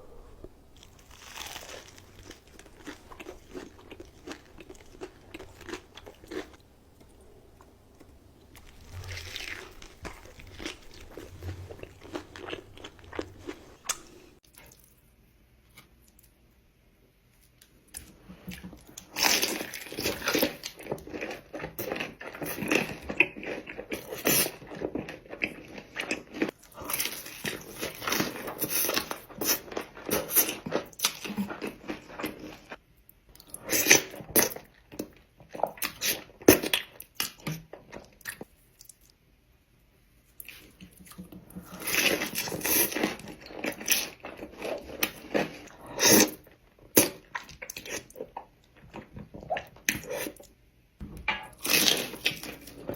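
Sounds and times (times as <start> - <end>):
crunchy bites and chewing: 0.4 - 7.2, 8.5 - 14.4.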